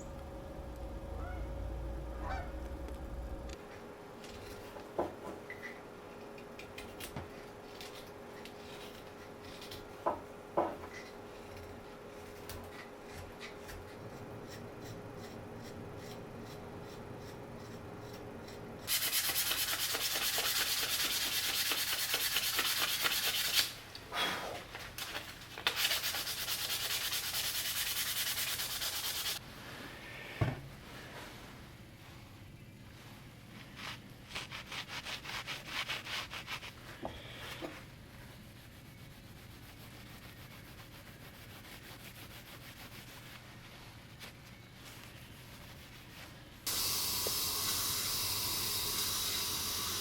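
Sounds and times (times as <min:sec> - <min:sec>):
wood sanding: 0:18.9 - 0:23.7, 0:25.7 - 0:29.4.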